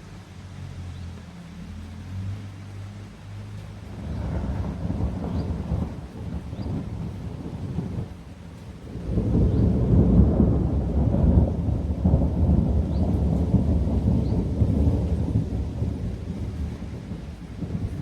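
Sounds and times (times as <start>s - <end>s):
rain falling: 0.0s - 18.0s
rolling thunder: 3.9s - 18.0s.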